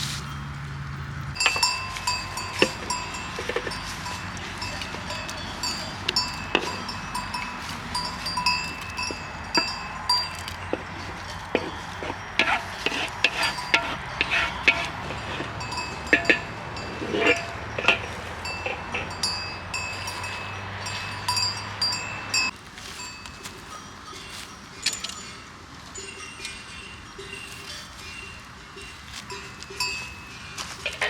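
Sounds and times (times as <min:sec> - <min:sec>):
livestock bells clanking: 0:00.1 - 0:31.0.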